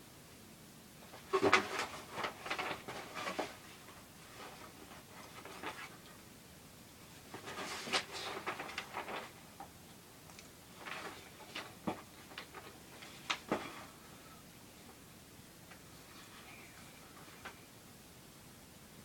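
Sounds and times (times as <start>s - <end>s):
rustling and clicking plastic parts: 1.0s - 6.2s, 7.2s - 14.0s.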